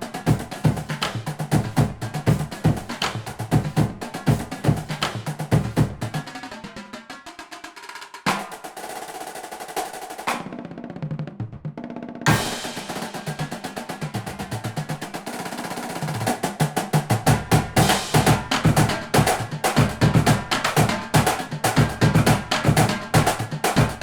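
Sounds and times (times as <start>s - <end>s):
fast drum beat: 0.0s - 24.0s
loud drum hit: 12.3s - 15.0s, 16.0s - 24.0s.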